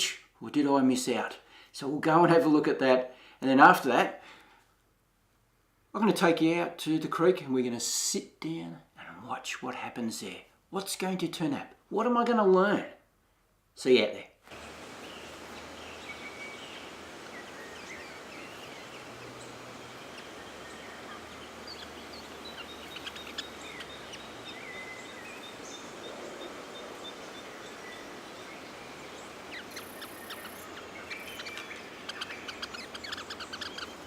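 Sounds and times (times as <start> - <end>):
steady background hiss: 0.0 - 34.0
small birds chirping and whistling: 15.0 - 34.0.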